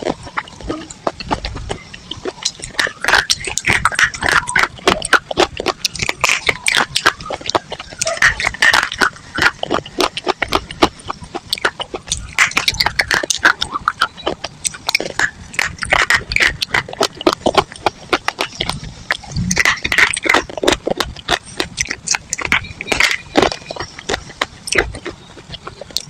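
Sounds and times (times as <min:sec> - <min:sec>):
dry chalk and clay crunching: 0:00.0 - 0:26.0.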